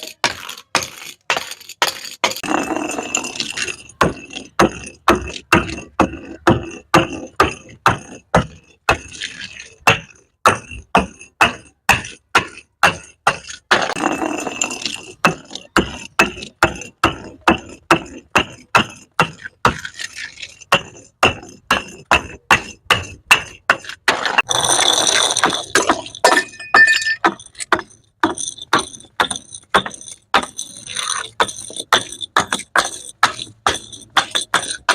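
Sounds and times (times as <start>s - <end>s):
glass bottles crashing: 24.1s - 34.9s.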